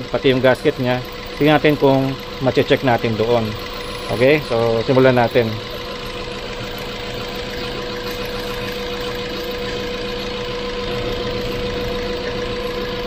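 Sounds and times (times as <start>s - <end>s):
car engine at high idle: 0.0s - 13.0s
steady high tone: 0.0s - 13.0s.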